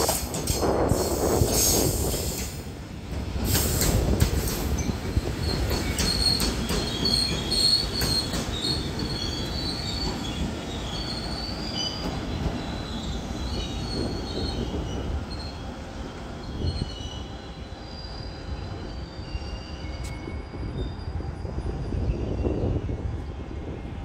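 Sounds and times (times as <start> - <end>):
train running rumble: 0.0 - 24.0
high wheel squeal: 4.7 - 22.8.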